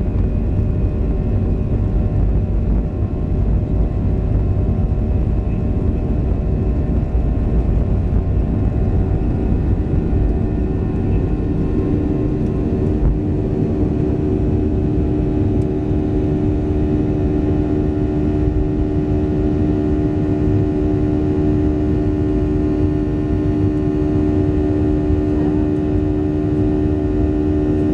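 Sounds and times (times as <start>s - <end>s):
airplane cabin rumble: 0.0s - 27.9s
steady engine tone: 0.0s - 27.9s.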